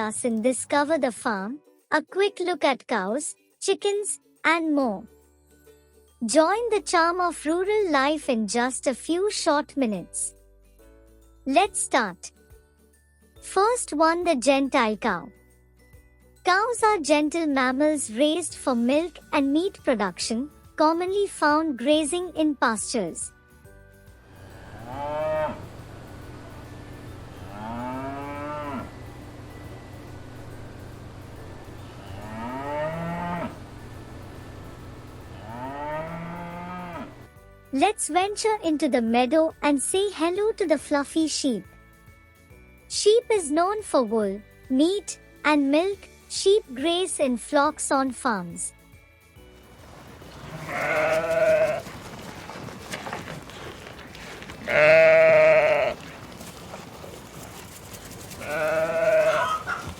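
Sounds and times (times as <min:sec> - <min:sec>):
cow mooing: 0:24.6 - 0:25.8, 0:27.3 - 0:29.1, 0:32.0 - 0:33.6, 0:35.3 - 0:37.2, 0:50.4 - 0:52.0, 0:53.5 - 0:57.0, 0:58.3 - 0:59.9
sheep bleating: 0:50.3 - 0:57.6, 0:58.2 - 0:59.9.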